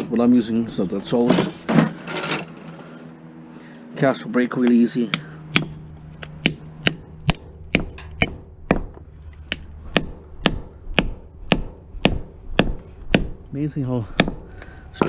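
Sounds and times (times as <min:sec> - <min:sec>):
hammer striking cast iron: 0:05.5 - 0:05.8, 0:06.4 - 0:15.0.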